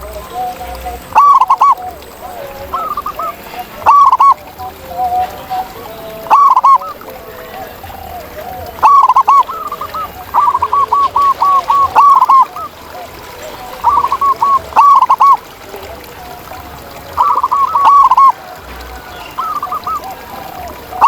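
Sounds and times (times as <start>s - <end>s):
dove cooing rolling notes: 0.0s - 21.0s
faint low cooing: 0.0s - 21.0s.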